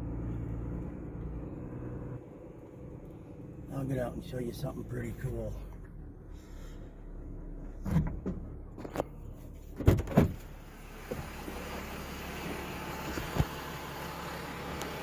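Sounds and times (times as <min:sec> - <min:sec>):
low engine hum: 0:00.0 - 0:15.0
vehicle door clicks: 0:09.8 - 0:10.5.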